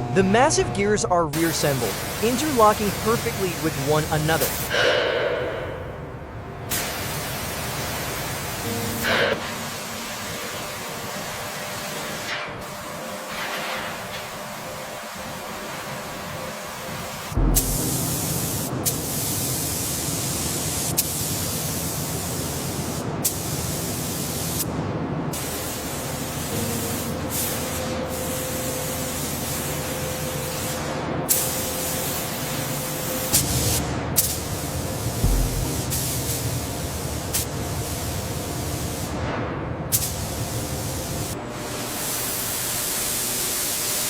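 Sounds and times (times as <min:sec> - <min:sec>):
steady spray hiss: 0:01.4 - 0:04.7, 0:06.7 - 0:24.7, 0:25.3 - 0:39.2, 0:39.9 - 0:44.0.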